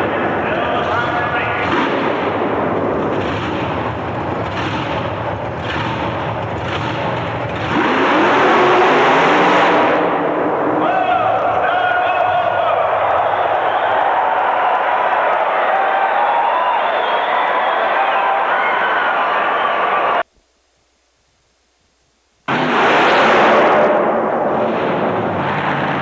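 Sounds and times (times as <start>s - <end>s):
truck engine at full throttle: 0.0s - 11.6s, 22.5s - 26.0s.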